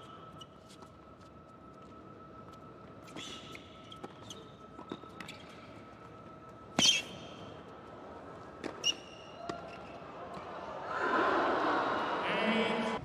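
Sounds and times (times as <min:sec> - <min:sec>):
shoes squeaking on court: 0:03.0 - 0:07.7, 0:08.5 - 0:10.1.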